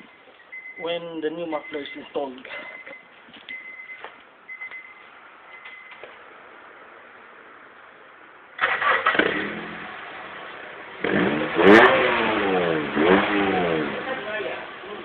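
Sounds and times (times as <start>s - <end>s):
car engine revving: 8.6s - 15.0s.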